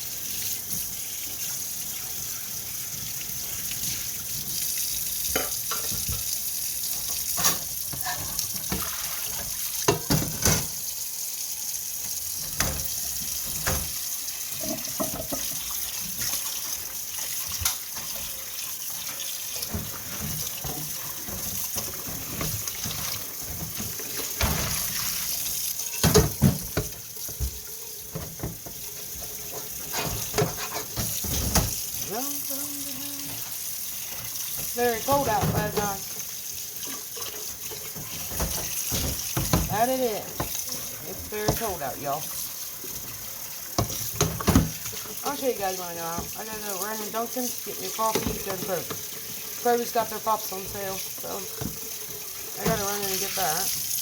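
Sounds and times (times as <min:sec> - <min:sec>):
tap running into sink: 0:05.2 - 0:10.8, 0:12.0 - 0:16.5, 0:19.0 - 0:32.1, 0:33.2 - 0:42.0, 0:42.9 - 0:45.2, 0:48.0 - 0:49.5, 0:50.5 - 0:53.9
dishes and utensils clinking: 0:05.3 - 0:06.3, 0:07.0 - 0:10.8, 0:14.6 - 0:15.7, 0:25.9 - 0:31.8.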